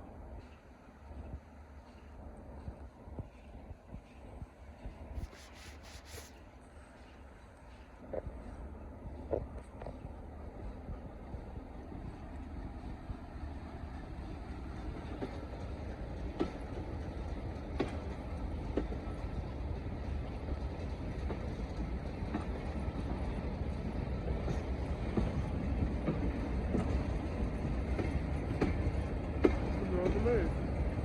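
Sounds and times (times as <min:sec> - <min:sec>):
train rumbling: 0:00.0 - 0:31.0
wheels clicking over rail joints: 0:14.8 - 0:31.0.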